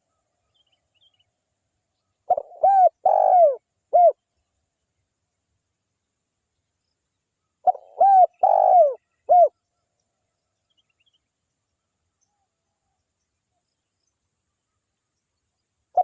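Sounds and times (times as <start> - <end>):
dove cooing: 2.3 - 4.2, 7.6 - 9.5.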